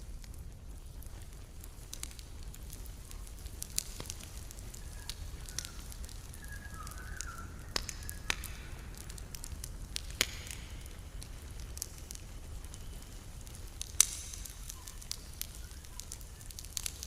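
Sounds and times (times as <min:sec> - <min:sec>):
low steady rumble: 0:00.0 - 0:06.4
campfire crackling and popping: 0:00.0 - 0:17.0.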